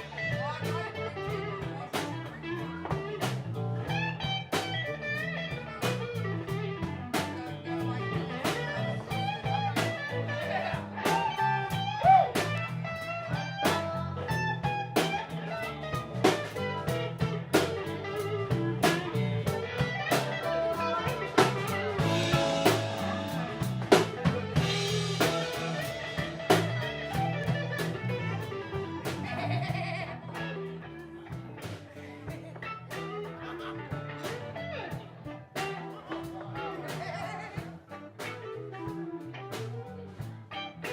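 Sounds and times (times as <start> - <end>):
live blues band playing: 0.0 - 40.9.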